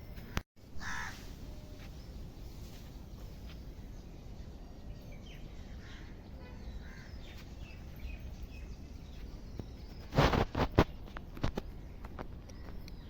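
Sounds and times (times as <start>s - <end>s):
faint bird calls: 0.3s - 1.6s.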